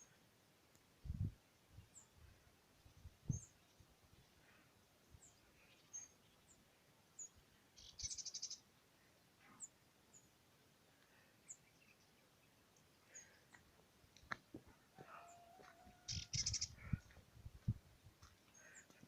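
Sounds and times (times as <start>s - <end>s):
songbird chirps: 0.0s - 19.0s
bird trill: 7.8s - 8.6s, 16.0s - 16.8s.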